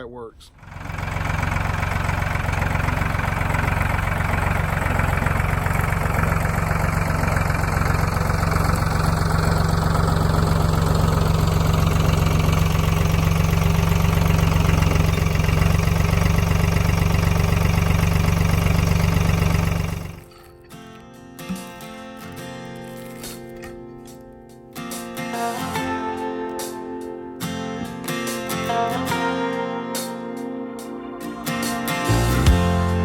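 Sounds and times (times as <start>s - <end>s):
band sawmill sawing a log: 0.7s - 20.2s.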